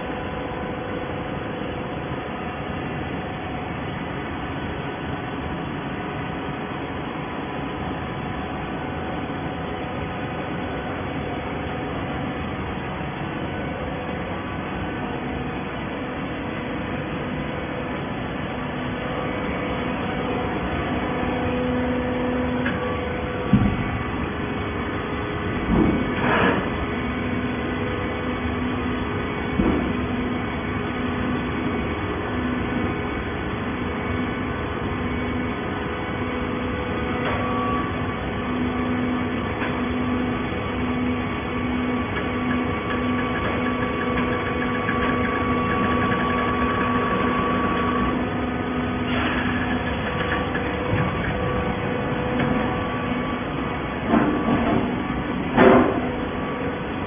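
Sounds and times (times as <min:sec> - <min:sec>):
baler machine hum: 0:00.0 - 0:57.0
machine clunks: 0:54.0 - 0:56.2.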